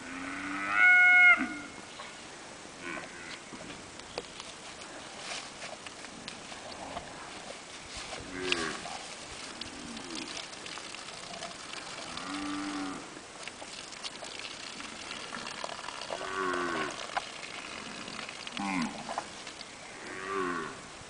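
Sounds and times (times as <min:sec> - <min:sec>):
cow mooing: 0:12.0 - 0:13.1, 0:16.1 - 0:17.0, 0:17.8 - 0:19.1, 0:20.0 - 0:20.8.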